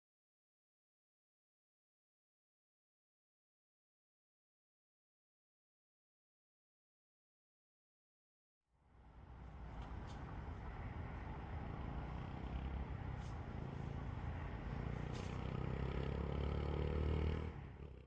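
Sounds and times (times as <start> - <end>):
traffic rumble: 8.8 - 18.0
engine hum: 8.9 - 18.0.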